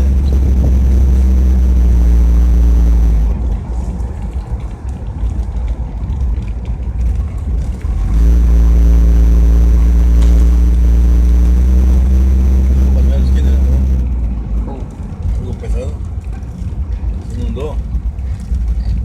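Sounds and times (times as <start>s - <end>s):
vehicle engine rumble: 0.0s - 3.5s, 7.8s - 15.0s.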